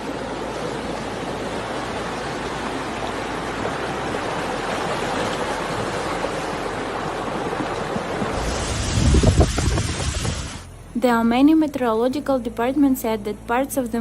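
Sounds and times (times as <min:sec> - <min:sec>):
floodwater rushing: 0:00.0 - 0:10.8.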